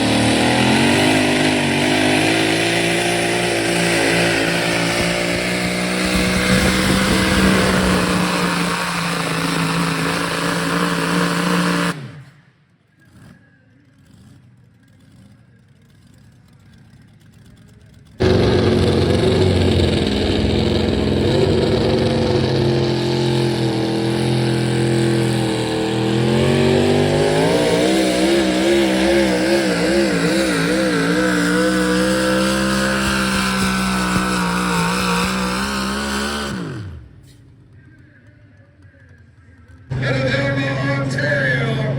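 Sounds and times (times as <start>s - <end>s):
engine running hard under load: 0.0s - 12.2s, 18.2s - 37.3s.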